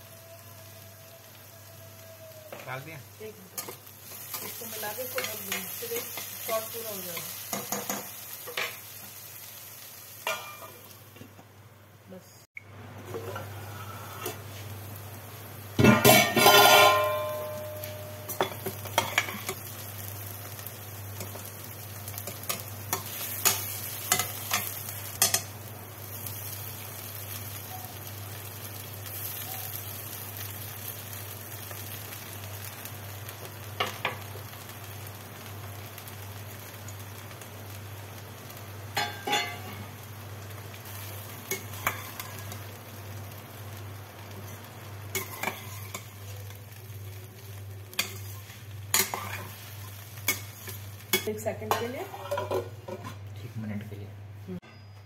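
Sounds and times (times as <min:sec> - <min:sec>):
food frying in a pan: 0:00.0 - 0:54.1
loud ringing metal clang: 0:15.8 - 0:18.6.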